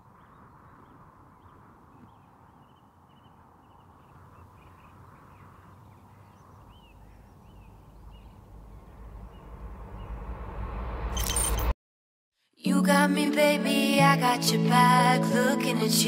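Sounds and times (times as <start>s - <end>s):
small birds chirping: 0.0s - 10.2s
low rumble: 6.7s - 11.7s.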